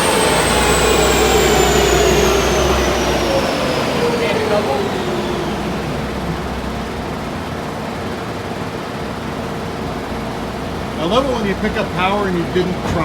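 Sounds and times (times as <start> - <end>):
car engine winding down: 0.0 - 8.5
dyno mechanical whir: 0.0 - 13.0.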